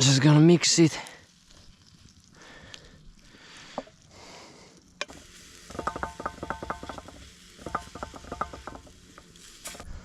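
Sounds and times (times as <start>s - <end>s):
metal utensil clattering in pan: 5.7s - 9.0s.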